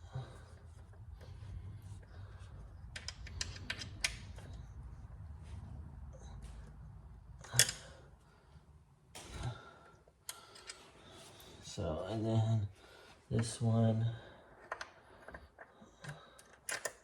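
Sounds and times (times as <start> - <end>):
low steady rumble: 0.0 - 15.2
small metal clicks and taps: 2.9 - 4.6.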